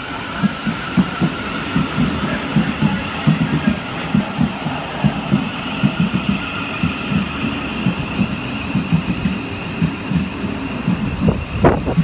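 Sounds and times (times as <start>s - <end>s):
electric train whine: 0.0s - 12.0s
train wheels thumping: 0.4s - 12.0s.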